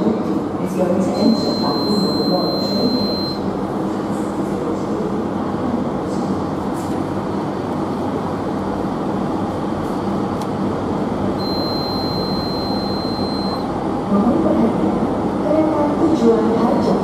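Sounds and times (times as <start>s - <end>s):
high-pitched electronic tone: 11.4s - 13.6s.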